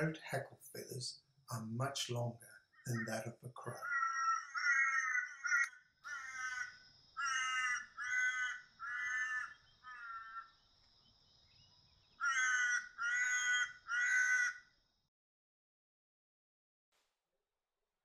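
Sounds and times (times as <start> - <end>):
raven cawing: 2.7 - 10.6, 12.2 - 14.7.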